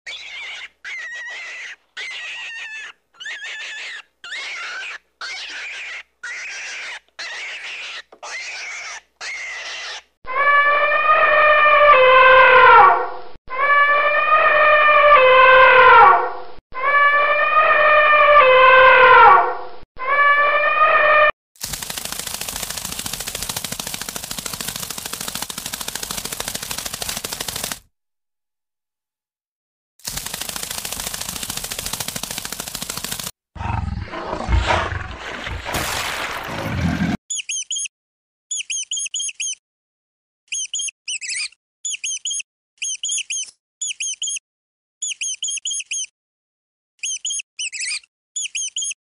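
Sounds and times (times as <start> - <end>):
elephant trumpeting: 0.1 - 12.6, 33.6 - 37.2
fast rattle of clicks: 21.6 - 27.8, 30.0 - 33.3
tiger growling: 33.6 - 37.2.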